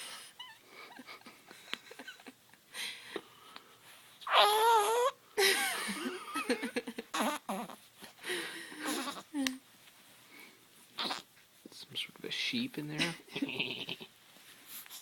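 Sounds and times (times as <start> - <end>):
baby crying: 4.3 - 5.2, 7.1 - 7.8, 11.0 - 11.3
baby grunting squeaks: 4.3 - 5.2, 7.2 - 7.8, 8.9 - 9.3, 11.0 - 11.3.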